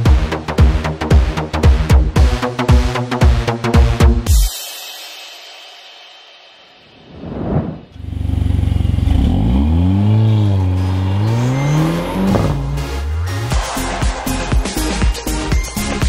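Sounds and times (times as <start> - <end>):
brief whoosh: 6.9 - 8.0
car engine revving: 7.2 - 13.9
electronic music: 10.4 - 16.0.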